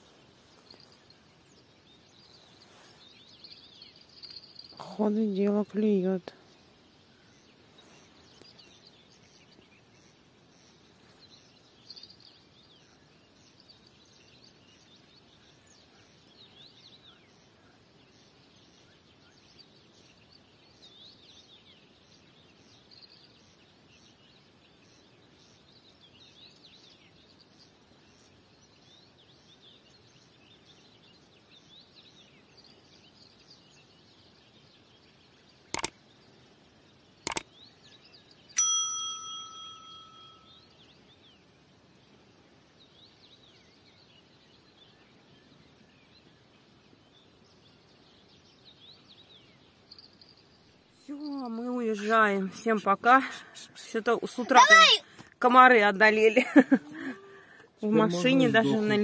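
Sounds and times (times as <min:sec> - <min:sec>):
faint birdsong chirps: 0:00.0 - 0:59.0
sharp loud ding: 0:38.6 - 0:40.5.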